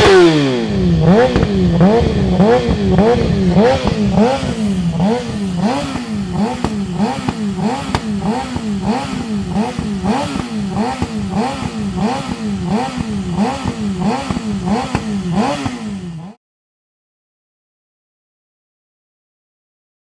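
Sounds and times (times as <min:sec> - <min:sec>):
exhaust pops: 0:00.0 - 0:16.0
motorcycle engine revving: 0:00.0 - 0:16.4.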